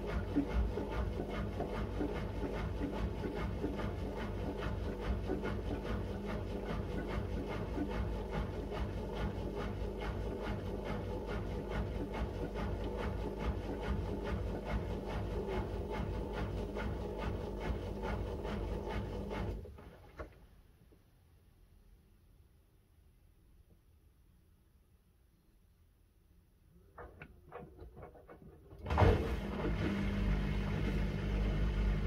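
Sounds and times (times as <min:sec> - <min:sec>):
washing machine motor hum: 0:00.0 - 0:20.3, 0:26.8 - 0:32.0.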